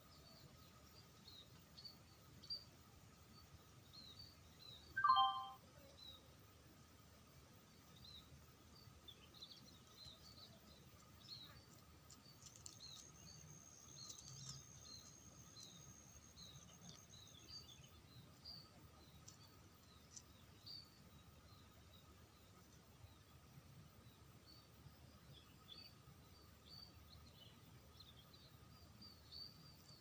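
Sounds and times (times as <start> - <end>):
small birds chirping: 0.0 - 6.3, 7.6 - 30.0
thin high steady tone: 5.0 - 5.6.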